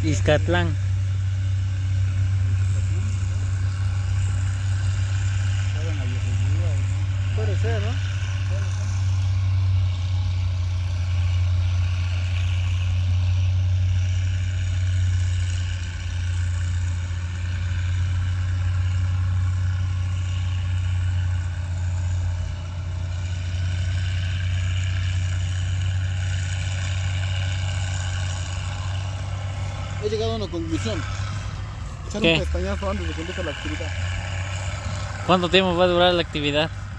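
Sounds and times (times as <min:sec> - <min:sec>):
cars creeping past on dirt road: 0:00.0 - 0:36.9.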